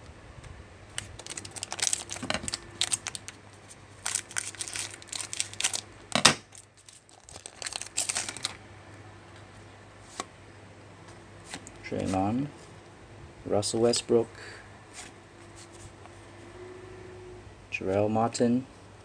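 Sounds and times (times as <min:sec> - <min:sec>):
trading cards and packaging rustling: 0:00.9 - 0:08.6.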